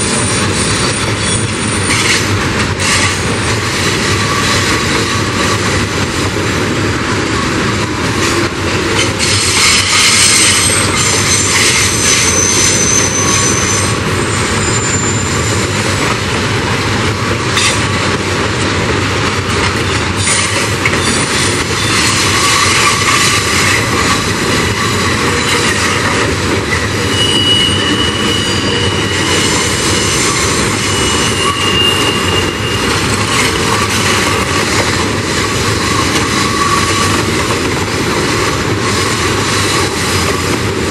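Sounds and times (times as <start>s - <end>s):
wheel squeal on rails: 0.0s - 5.6s, 9.0s - 16.0s, 19.8s - 37.6s
freight train rolling past: 0.0s - 40.9s.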